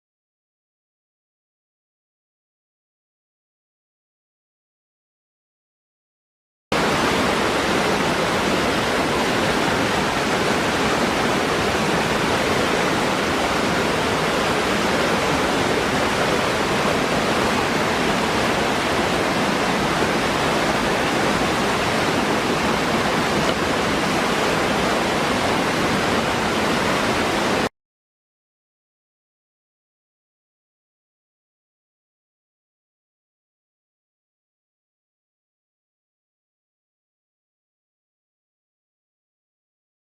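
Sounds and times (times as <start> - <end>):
waterfall rushing: 6.8 - 27.7.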